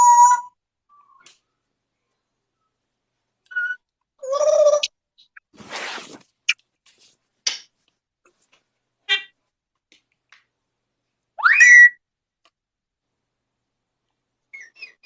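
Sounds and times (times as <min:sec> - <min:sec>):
parrot calling: 0:09.1 - 0:09.4, 0:11.4 - 0:12.0.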